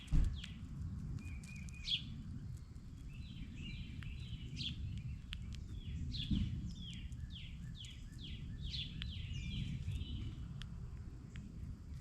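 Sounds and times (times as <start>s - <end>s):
low background rumble: 0.0s - 12.0s
songbird whistling: 1.2s - 2.1s.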